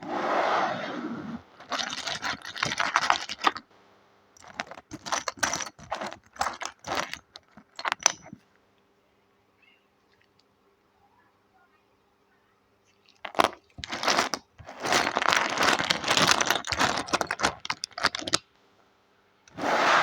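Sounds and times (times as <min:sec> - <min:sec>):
plastic bricks clattering: 0:01.6 - 0:03.7, 0:04.4 - 0:08.4, 0:13.1 - 0:18.4
brief rush of noise: 0:19.6 - 0:20.0.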